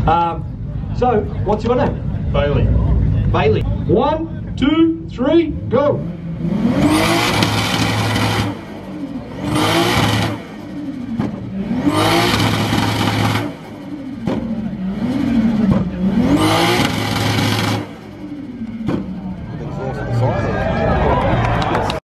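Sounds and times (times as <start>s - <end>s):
car engine revving through exhaust: 5.5s - 19.3s.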